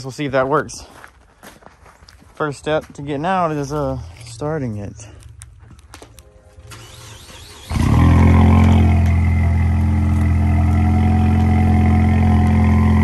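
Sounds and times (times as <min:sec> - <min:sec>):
car engine starting and idling: 0:06.6 - 0:13.0.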